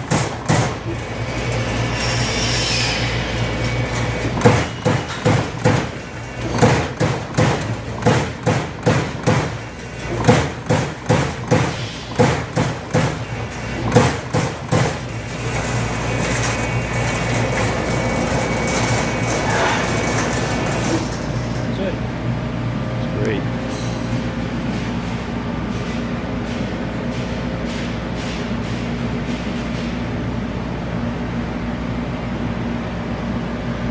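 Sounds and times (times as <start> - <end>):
punch press hitting sheet metal: 0.0 - 21.8
machine hum with high whine: 0.0 - 33.9.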